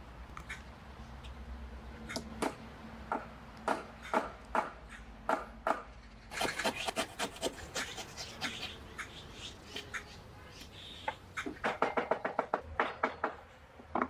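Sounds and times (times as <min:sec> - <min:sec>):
sharp knocks on wood: 0:02.1 - 0:05.9, 0:11.4 - 0:14.0.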